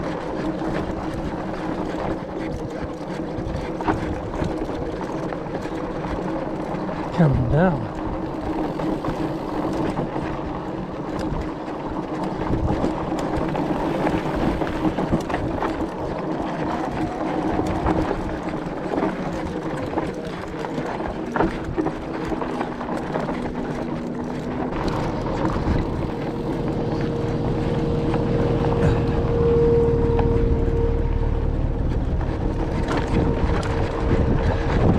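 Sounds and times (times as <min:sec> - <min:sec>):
crackly movement on dirt trail: 0:00.0 - 0:34.9
motor humming: 0:13.1 - 0:19.6, 0:24.0 - 0:34.9.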